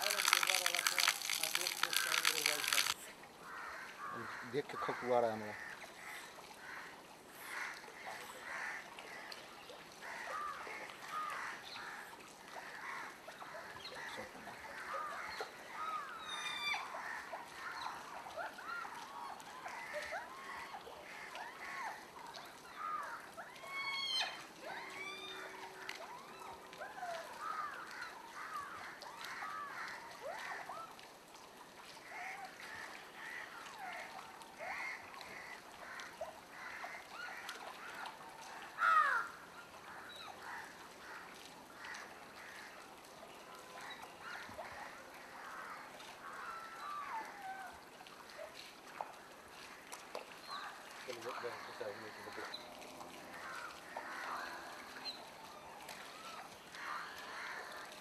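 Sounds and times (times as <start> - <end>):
birds honking and cawing: 0.0 - 9.3, 10.0 - 30.2, 50.4 - 58.0.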